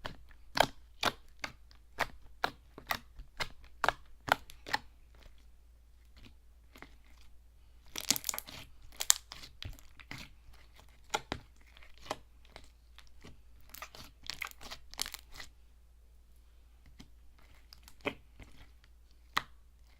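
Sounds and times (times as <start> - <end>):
hands squishing slime: 0.0 - 15.6, 16.8 - 19.9.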